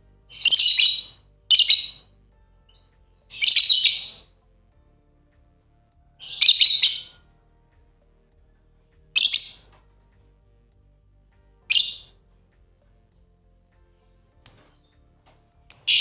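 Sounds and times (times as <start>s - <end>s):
lovebird chirping: 0.3s - 2.1s, 2.7s - 4.3s, 6.2s - 7.2s, 9.2s - 9.7s, 11.7s - 12.1s, 14.4s - 15.0s, 15.7s - 16.0s.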